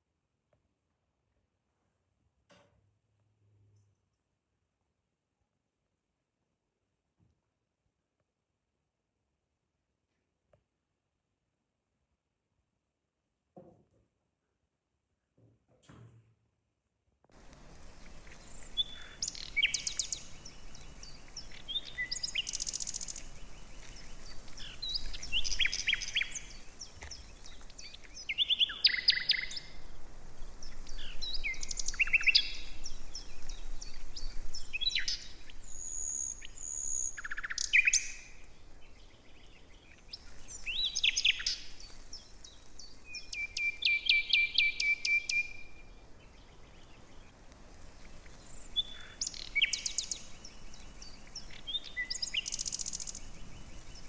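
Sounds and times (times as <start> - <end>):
songbirds chirping and whistling: 17.7 - 54.0.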